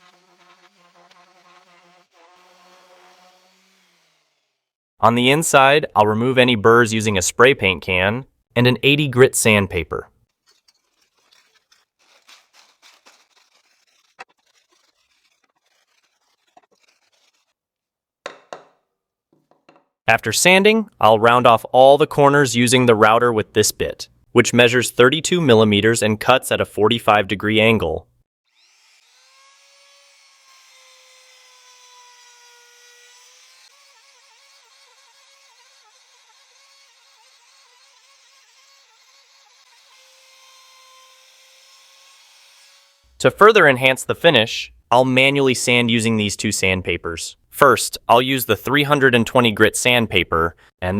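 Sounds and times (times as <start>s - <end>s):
sandpaper rubbing on wood: 0.0s - 4.1s, 10.4s - 17.6s
wood router whining: 0.0s - 4.6s
knock: 18.3s - 18.8s.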